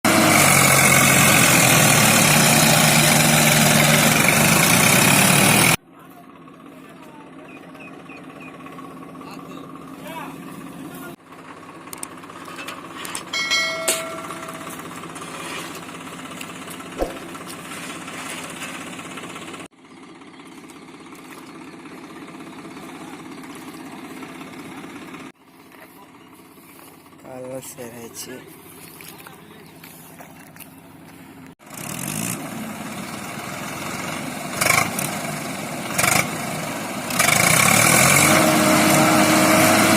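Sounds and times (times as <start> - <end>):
tractor diesel engine running: 0.0 - 39.9
sharp knock: 17.0 - 17.3.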